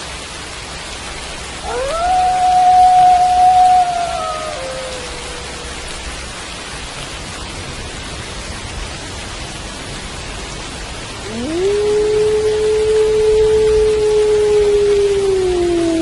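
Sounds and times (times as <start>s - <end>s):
steady rain: 0.0s - 16.0s
wolf howling: 1.6s - 6.1s, 11.2s - 16.0s.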